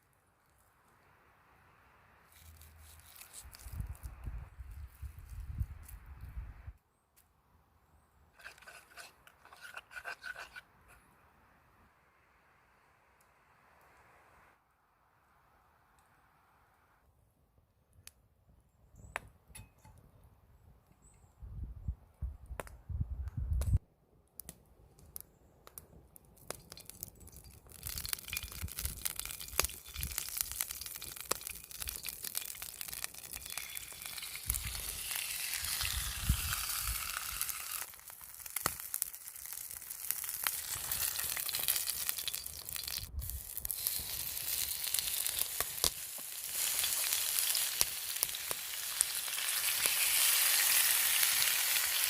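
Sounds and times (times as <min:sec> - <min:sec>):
food sizzling in a hot pan: 0:29.5 - 0:52.0.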